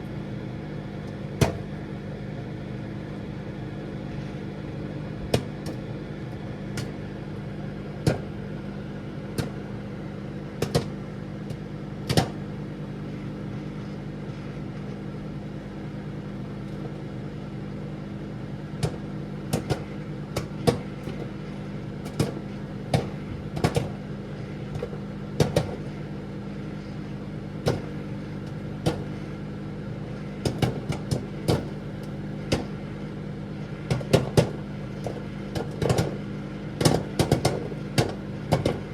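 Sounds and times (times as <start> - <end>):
microwave oven humming: 0.0 - 38.9
popcorn kernels popping: 18.8 - 21.4, 22.0 - 24.0, 24.7 - 25.9, 27.6 - 29.3, 30.4 - 32.8, 33.9 - 38.9.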